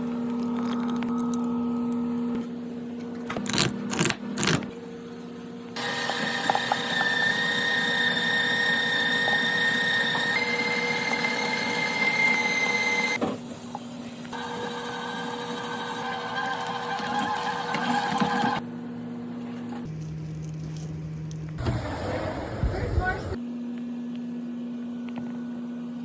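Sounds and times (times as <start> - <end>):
small electric motor whining: 5.8 - 13.2, 14.3 - 18.6.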